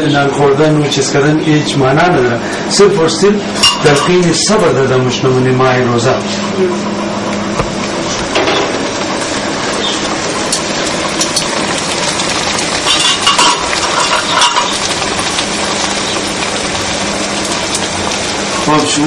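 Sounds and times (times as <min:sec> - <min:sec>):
pastry sizzling in hot oil: 0:00.8 - 0:19.0
spatula clinking and scraping pan: 0:12.9 - 0:14.8.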